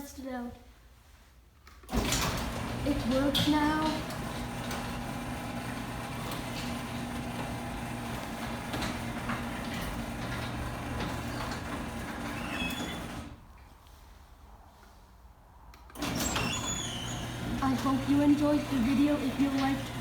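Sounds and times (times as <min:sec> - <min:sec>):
garage door opener motor humming: 0:01.9 - 0:13.4, 0:15.9 - 0:20.0.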